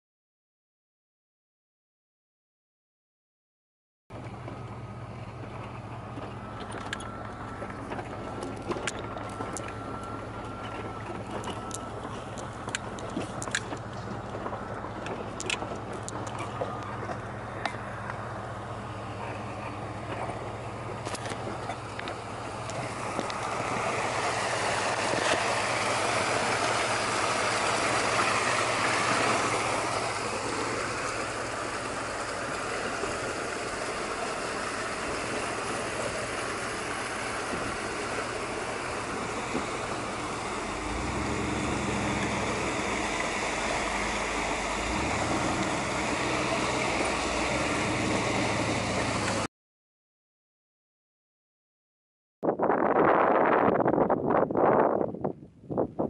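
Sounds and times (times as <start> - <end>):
vehicle engine running slowly: 4.1 - 49.5
fast-flowing creek rushing: 22.8 - 49.5.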